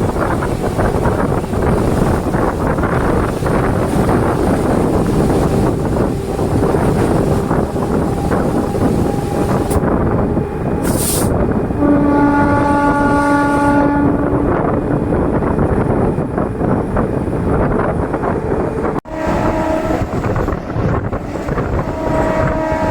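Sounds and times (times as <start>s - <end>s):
train wheels rumbling on rails: 0.0s - 22.9s
train horn: 5.4s - 10.0s, 10.8s - 14.7s, 19.1s - 20.5s, 21.5s - 22.9s
brief hiss: 10.8s - 11.3s.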